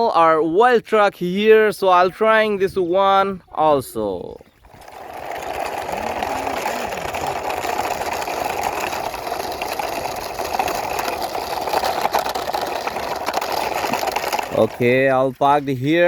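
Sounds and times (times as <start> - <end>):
toy truck wheels rolling: 4.5 - 16.0.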